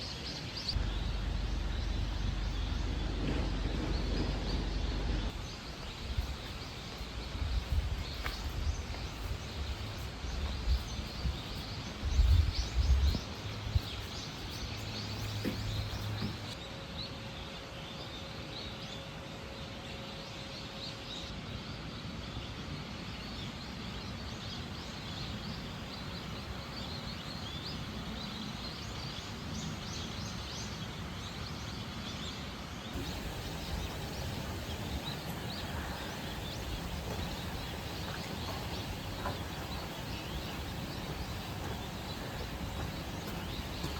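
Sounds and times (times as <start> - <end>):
small birds chirping: 0.0 - 16.6, 23.1 - 43.9
steady background hiss: 0.0 - 43.9
low thumps: 33.0 - 43.9.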